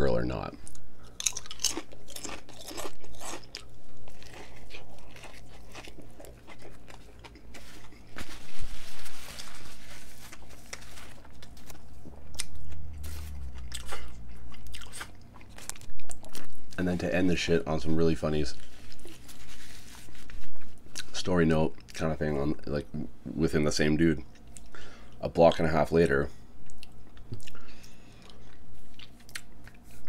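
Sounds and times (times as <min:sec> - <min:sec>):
crunchy sandwich chewing: 0:00.7 - 0:17.0, 0:18.5 - 0:21.1, 0:26.6 - 0:30.0.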